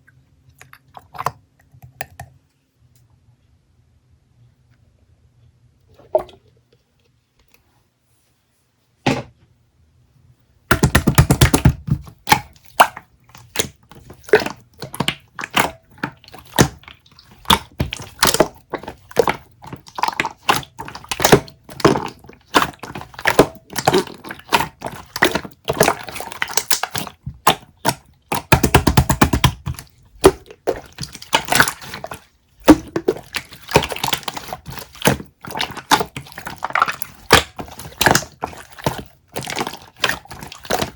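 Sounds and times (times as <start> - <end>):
clicks and crunches: 12.2 - 40.9.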